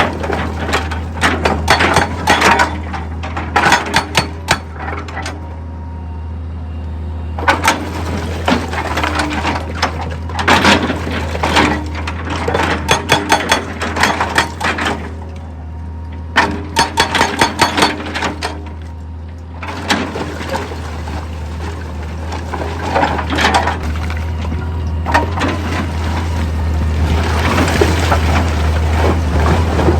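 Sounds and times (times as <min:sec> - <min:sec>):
rocks clattering against steel: 0:00.0 - 0:05.4, 0:07.4 - 0:15.3, 0:16.4 - 0:18.8, 0:22.4 - 0:24.0
machinery engine hum: 0:00.0 - 0:29.9.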